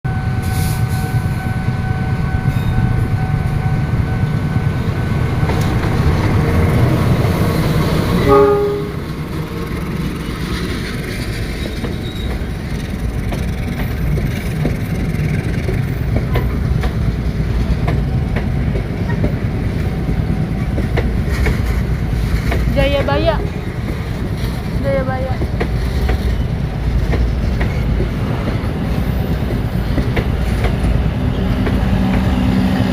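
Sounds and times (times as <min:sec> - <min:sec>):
train rumbling: 0:00.1 - 0:32.9
train whine: 0:00.1 - 0:32.9
train horn blast: 0:07.4 - 0:09.1.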